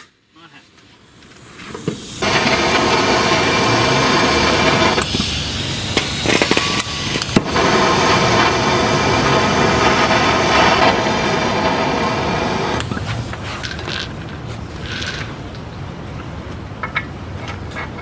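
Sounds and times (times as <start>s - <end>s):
air impact wrench hammering: 1.9s - 12.9s.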